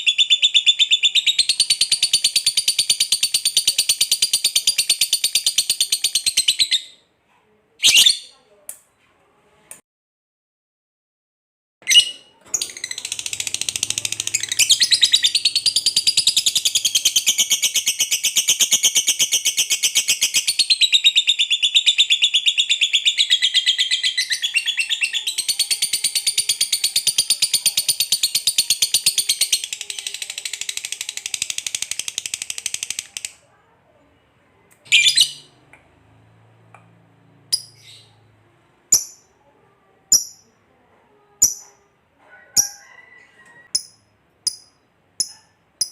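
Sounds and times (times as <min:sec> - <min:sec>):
bird chattering trill: 0:11.9 - 0:33.3.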